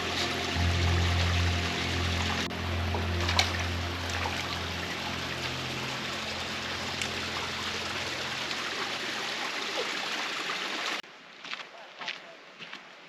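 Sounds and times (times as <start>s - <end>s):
stream of water running: 0.0s - 11.6s.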